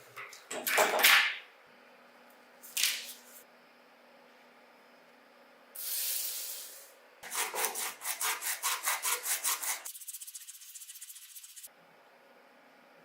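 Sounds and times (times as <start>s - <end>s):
hand sanding strokes: 7.2s - 11.7s.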